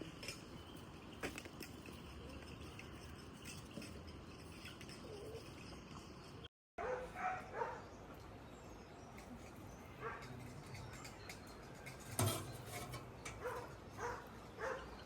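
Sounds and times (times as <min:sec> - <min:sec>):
dog barking: 0:06.8 - 0:07.8, 0:10.0 - 0:10.2, 0:13.4 - 0:15.0.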